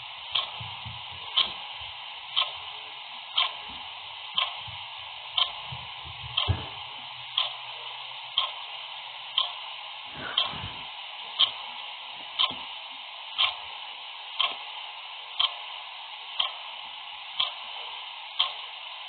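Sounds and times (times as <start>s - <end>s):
steady hiss: 0.0s - 19.0s
clock ticking: 0.3s - 1.6s, 2.3s - 2.7s, 3.4s - 3.6s, 4.4s - 4.8s, 5.4s - 6.6s, 7.3s - 7.7s, 8.3s - 8.7s, 9.4s - 9.6s, 11.4s - 11.6s, 12.4s - 12.7s, 13.4s - 13.6s, 14.4s - 14.6s, 15.4s - 15.7s, 16.4s - 16.7s, 17.4s - 17.8s, 18.4s - 18.7s.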